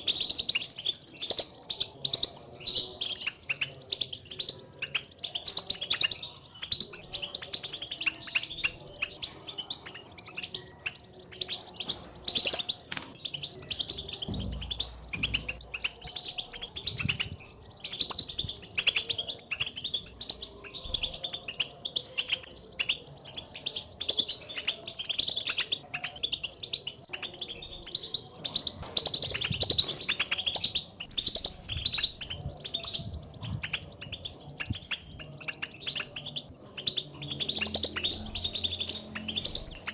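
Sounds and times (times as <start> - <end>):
finches twittering: 0.0 - 39.9.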